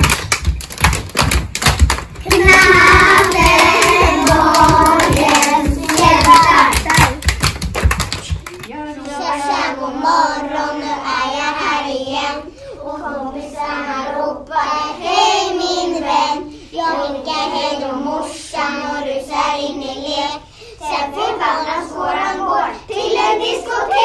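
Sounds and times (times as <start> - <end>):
children singing in unison: 2.3 - 6.8, 9.2 - 24.0.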